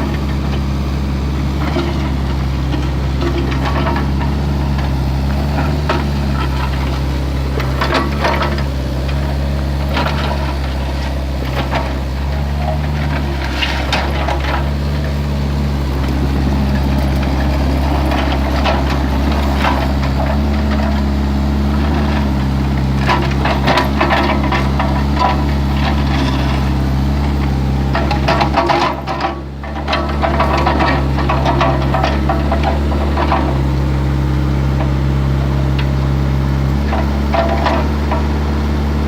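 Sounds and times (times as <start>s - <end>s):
excavator diesel engine running: 0.0s - 39.0s
knocks and scrapes of digging: 1.4s - 39.0s.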